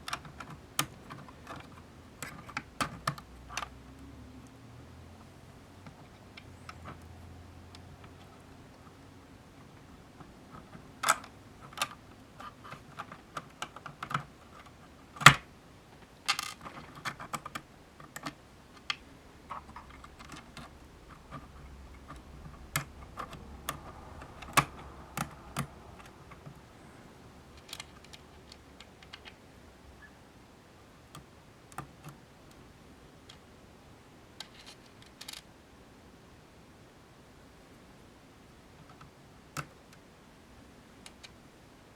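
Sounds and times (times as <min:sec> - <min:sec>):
small hard parts clicking: 0:00.0 - 0:03.8, 0:05.2 - 0:26.7, 0:27.5 - 0:29.4, 0:34.4 - 0:35.5.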